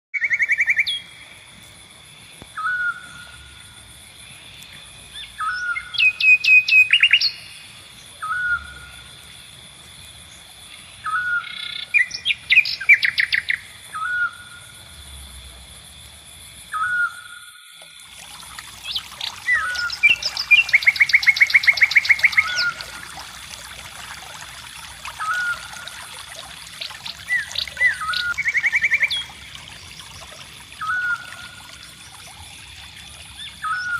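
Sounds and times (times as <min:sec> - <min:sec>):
birds rattling trills: 0:18.3 - 0:23.6, 0:24.8 - 0:33.9.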